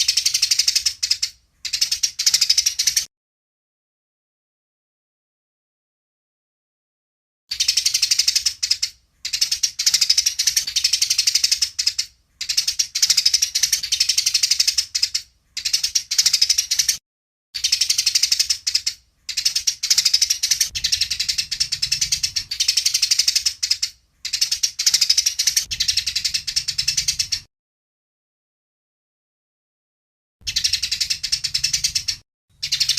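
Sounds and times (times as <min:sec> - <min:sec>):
sparrows chattering harshly: 0:00.0 - 0:03.1, 0:07.5 - 0:17.0, 0:17.6 - 0:27.5, 0:30.4 - 0:32.9.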